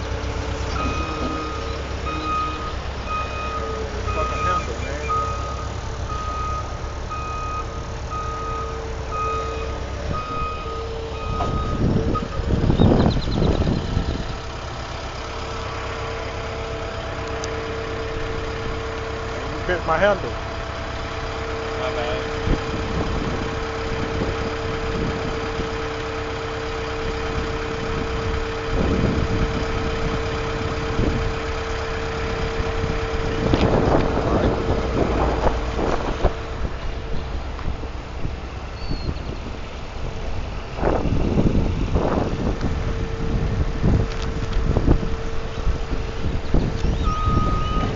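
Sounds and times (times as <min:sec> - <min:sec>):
low engine rumble: 0:00.0 - 0:47.9
reversing alarm beeping: 0:00.7 - 0:13.8, 0:46.8 - 0:47.9.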